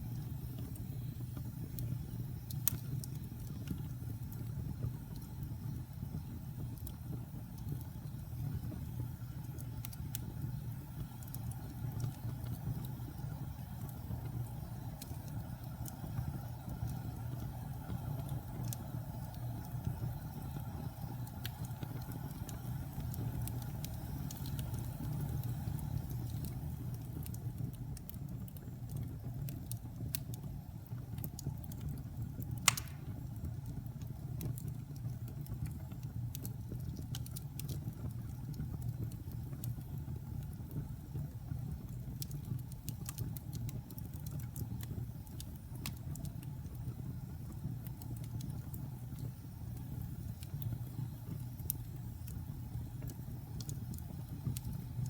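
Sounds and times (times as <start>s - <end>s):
fire crackling: 0.0s - 55.0s
low rumble of flames: 0.0s - 55.0s
sharp pop from fire: 32.6s - 33.3s.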